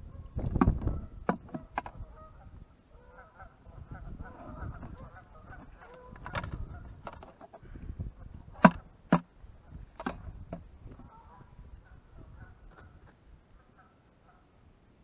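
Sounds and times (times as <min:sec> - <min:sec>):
geese honking faintly: 0:00.0 - 0:07.1, 0:11.0 - 0:14.6.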